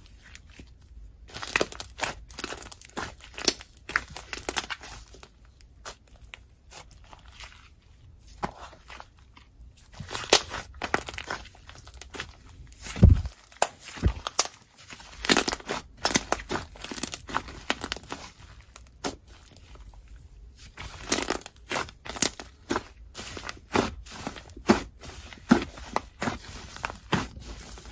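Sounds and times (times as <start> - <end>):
sticky slime crackles: 0.1 - 27.9
dull low thump: 13.0 - 13.3.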